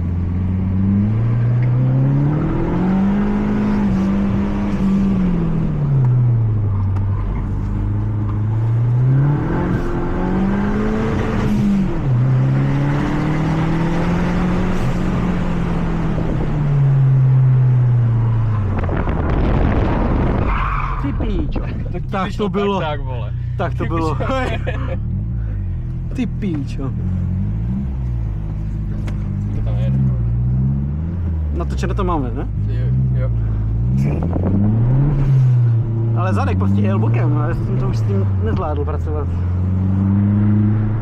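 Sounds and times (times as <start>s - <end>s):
car engine accelerating hard: 0.0s - 20.9s, 22.3s - 41.0s.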